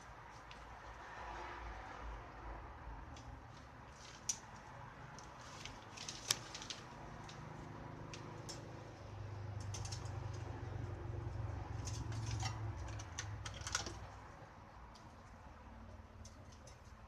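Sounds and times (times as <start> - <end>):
small hard objects clicking: 9.6 - 10.5, 11.8 - 14.2.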